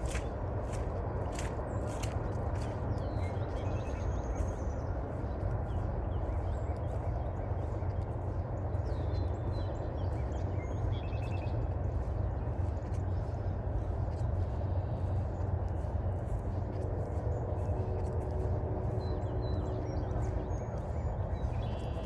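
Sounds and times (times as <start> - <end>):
footsteps on forest trail: 0.0 - 22.0
songbird singing: 0.0 - 22.0
steady low rumble: 0.0 - 22.0.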